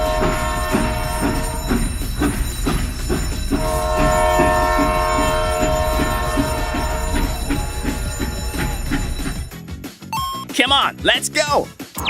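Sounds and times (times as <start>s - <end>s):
long horn blast: 0.0s - 1.7s, 3.6s - 7.5s
background music with steady beat: 0.0s - 12.0s.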